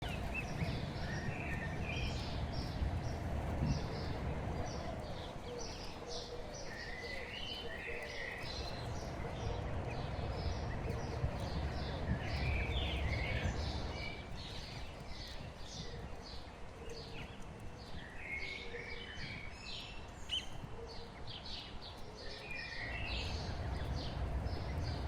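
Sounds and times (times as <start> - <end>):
birds chirping: 0.0 - 25.0
steady low rumble: 22.9 - 25.0.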